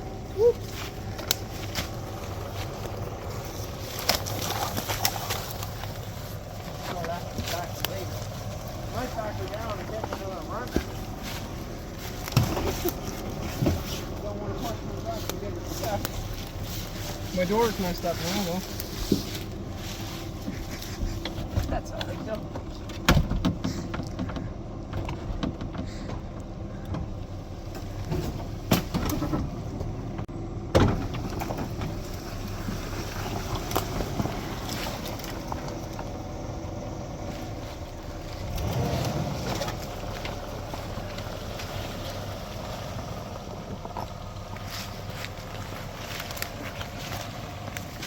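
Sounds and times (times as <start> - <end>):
pickup truck engine running: 0.0 - 48.0
truck body knocks: 22.6 - 27.2, 30.7 - 31.9.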